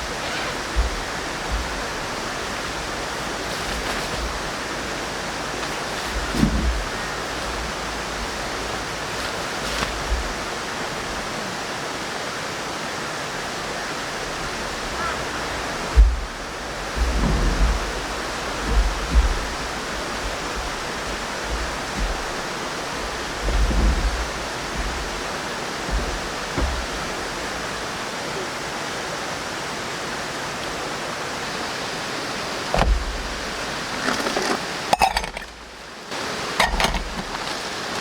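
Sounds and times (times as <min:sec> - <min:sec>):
stream flowing: 0:00.0 - 0:38.0
short low thumps: 0:15.6 - 0:27.8.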